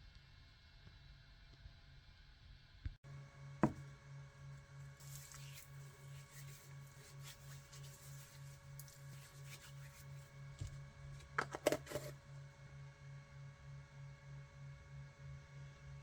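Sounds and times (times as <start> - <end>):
faint scratching and rubbing: 5.0 - 12.2.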